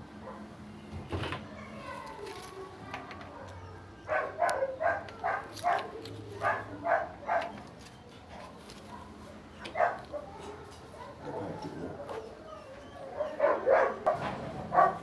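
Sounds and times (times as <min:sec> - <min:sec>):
dog barking: 0:00.2 - 0:00.5, 0:04.1 - 0:07.6, 0:08.9 - 0:12.4, 0:13.0 - 0:15.0.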